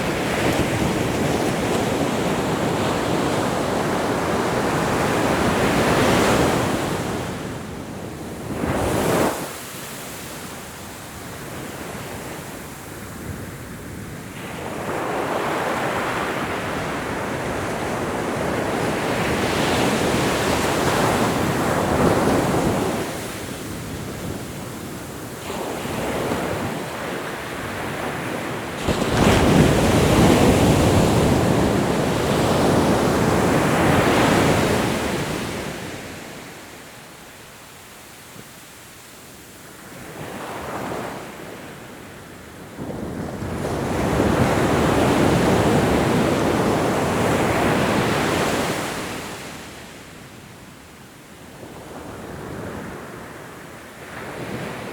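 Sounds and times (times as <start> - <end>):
ocean waves breaking: 25.4 - 35.9.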